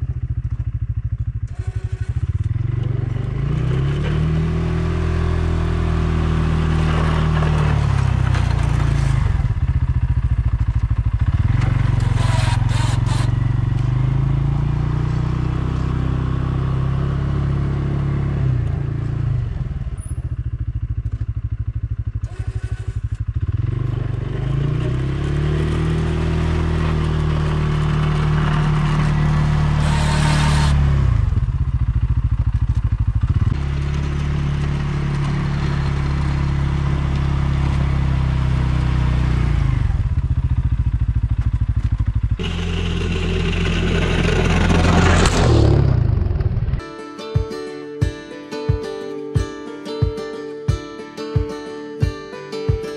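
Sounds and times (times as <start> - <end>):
atv engine: 0.0 - 46.8
plow blade scraping and clattering: 1.5 - 4.4, 6.2 - 10.2, 11.0 - 14.0, 22.2 - 31.3, 32.5 - 38.1, 41.4 - 46.8.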